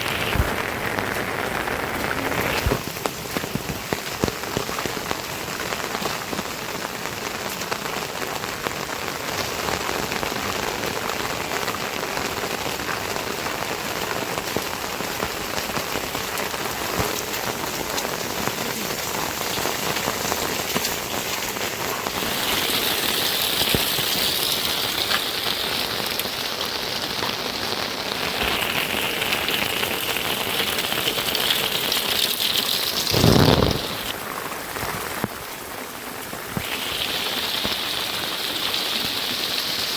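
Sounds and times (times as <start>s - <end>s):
steady rain falling: 0.0s - 39.9s
high hiss: 33.0s - 34.1s, 36.6s - 39.9s.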